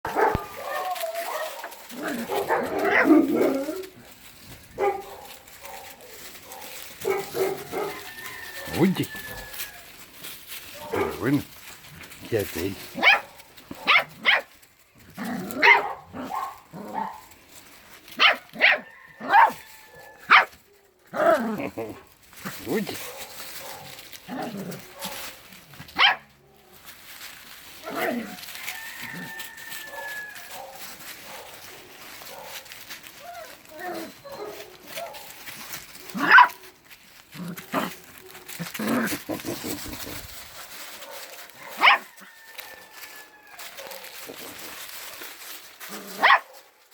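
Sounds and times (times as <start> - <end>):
dog barking: 0.1 - 3.6, 4.8 - 8.0, 10.8 - 11.3, 13.0 - 14.5, 15.6 - 17.2, 18.2 - 19.6, 20.3 - 20.6, 23.0 - 24.0, 24.9 - 25.2, 26.0 - 26.3, 29.9 - 31.7, 32.3 - 32.6, 34.3 - 35.3, 36.1 - 36.6, 41.0 - 42.2, 46.2 - 46.7.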